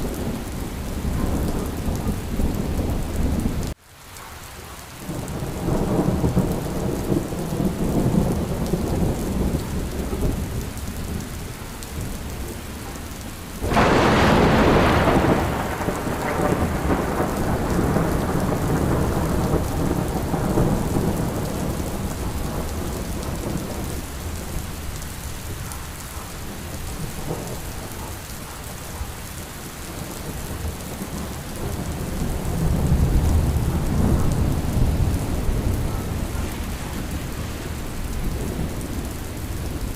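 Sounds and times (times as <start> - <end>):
rolling thunder: 0.0 - 3.8, 5.1 - 39.9
steady rain: 0.0 - 39.9
sharp thunderclap: 13.6 - 23.9.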